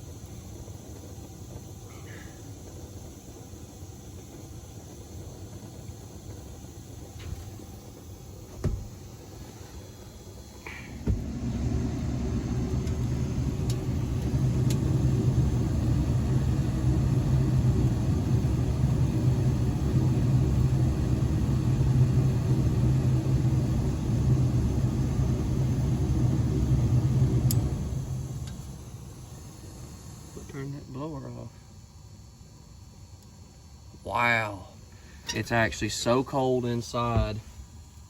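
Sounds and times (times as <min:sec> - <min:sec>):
gas furnace blower rumbling: 0:00.0 - 0:38.0
furnace click: 0:10.7 - 0:14.9.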